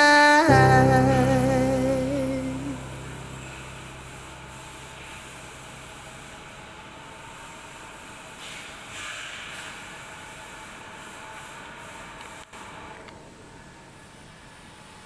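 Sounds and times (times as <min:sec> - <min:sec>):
background music: 0:00.0 - 0:05.1.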